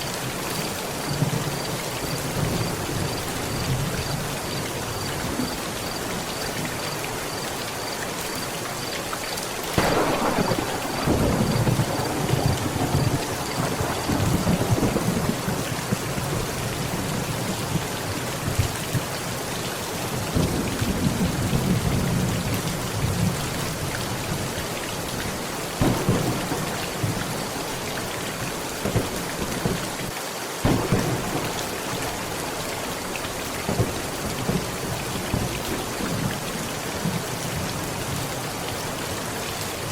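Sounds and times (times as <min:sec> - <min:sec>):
heavy rain drumming on tent: 0:00.0 - 0:39.9
rolling thunder: 0:09.8 - 0:17.7, 0:25.8 - 0:32.8.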